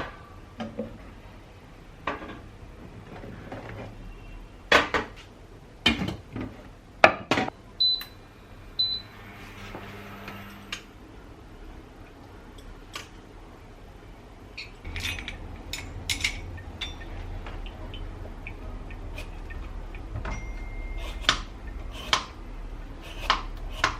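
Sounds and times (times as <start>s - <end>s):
dishes and utensils clinking: 14.6s - 18.0s.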